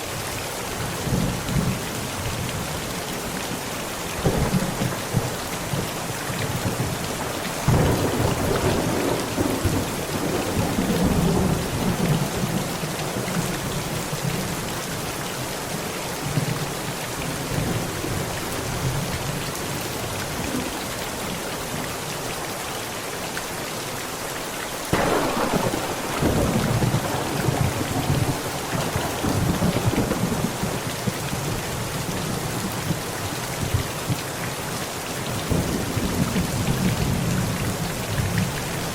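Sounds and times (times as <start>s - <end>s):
heavy rain on a tent: 0.0s - 38.9s
rolling thunderclaps: 4.2s - 12.6s, 24.9s - 31.8s.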